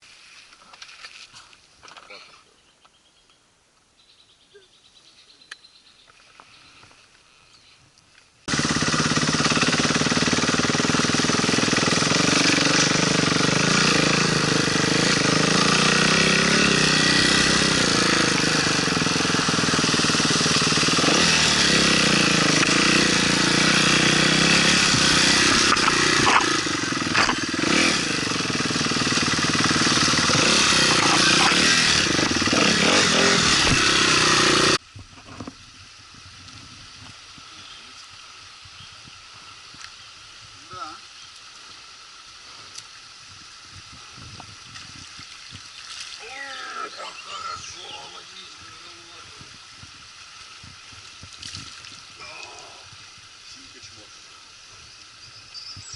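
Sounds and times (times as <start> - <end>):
motorcycle engine riding: 8.5 - 55.9
dense noisy hiss: 33.6 - 55.9.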